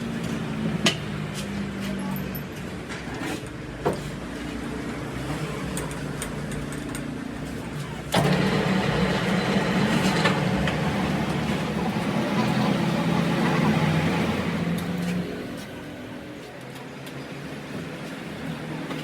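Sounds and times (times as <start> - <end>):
motor humming: 8.1 - 15.3.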